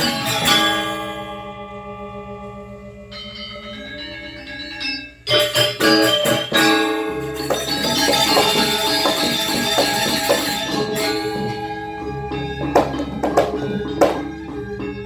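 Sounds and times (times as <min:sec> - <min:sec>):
gamelan accented strokes: 0:03.0 - 0:15.0
metallophones playing fast: 0:03.1 - 0:15.0.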